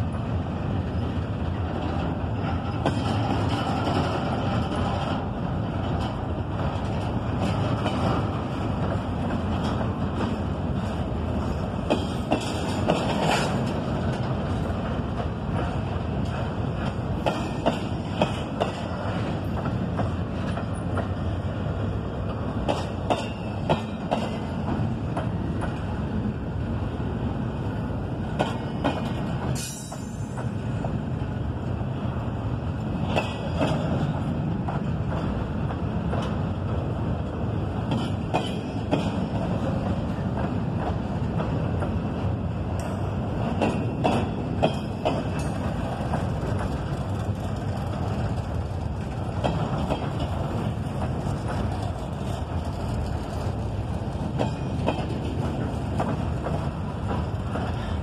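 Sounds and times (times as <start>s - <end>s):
train rumbling past: 0.0s - 58.0s
wheels clanking over rails: 0.1s - 26.2s, 32.8s - 58.0s.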